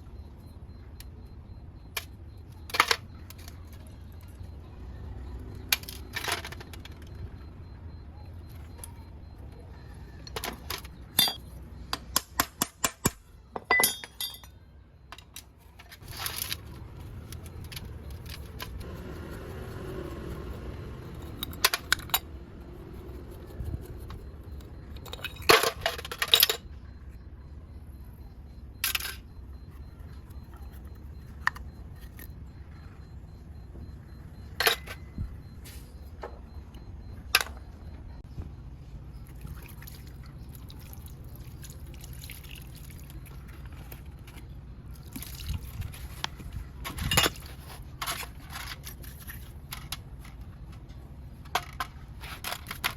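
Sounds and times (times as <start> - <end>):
metal parts clinking on work surface: 10.2 - 11.4, 12.8 - 16.6, 25.0 - 26.6, 34.6 - 35.0, 46.8 - 50.4.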